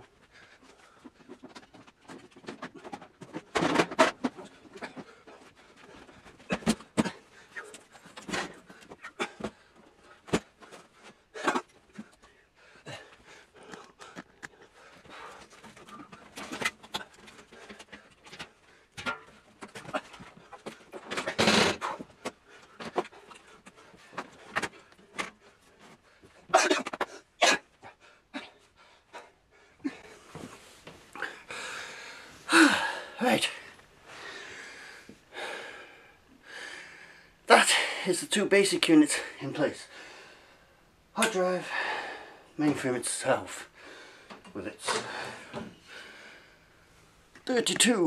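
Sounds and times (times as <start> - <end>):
knocks and clunks of handling: 0.7 - 12.3, 13.6 - 27.2.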